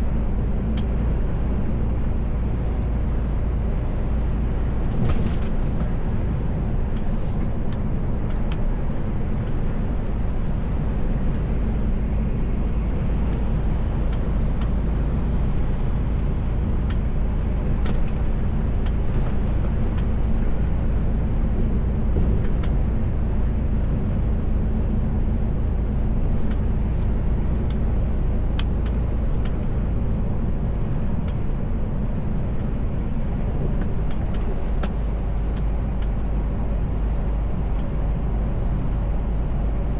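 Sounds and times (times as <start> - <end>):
road noise: 0.0 - 39.9
truck engine drone: 0.0 - 39.9.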